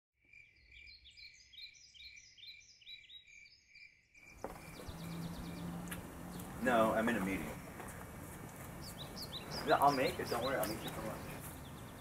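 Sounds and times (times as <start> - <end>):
small birds chirping: 0.2 - 12.0
outdoor background noise: 4.1 - 12.0.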